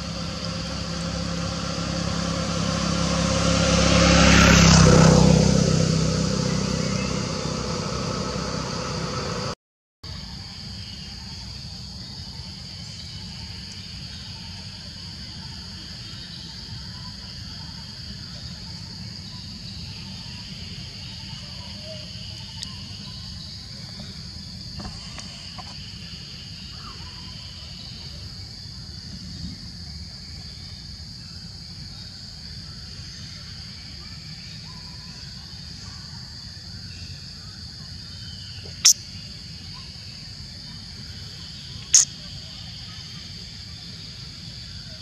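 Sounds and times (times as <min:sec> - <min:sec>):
low rumble: 0:00.0 - 0:09.6
insect drone: 0:00.0 - 0:45.0.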